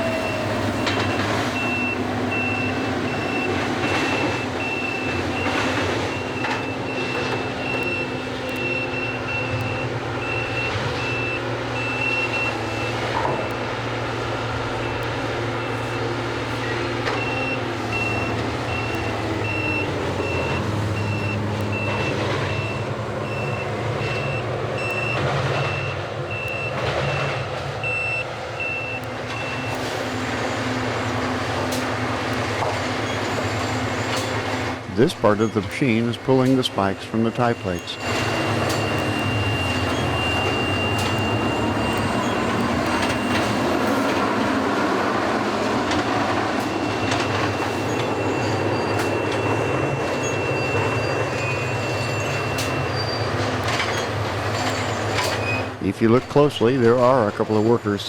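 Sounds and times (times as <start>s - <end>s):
high warning beeps: 0.0s - 31.0s, 35.0s - 45.2s, 45.8s - 58.0s
diesel machinery running: 0.0s - 58.0s.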